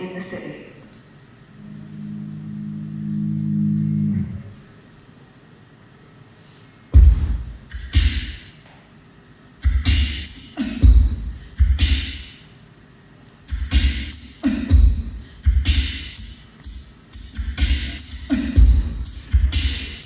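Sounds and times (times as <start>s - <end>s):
kick drum thuds: 7.0s - 8.3s, 10.8s - 12.0s, 14.7s - 15.8s, 18.6s - 19.6s
snare and cymbal hits: 7.0s - 8.5s, 9.6s - 12.4s, 13.4s - 20.0s.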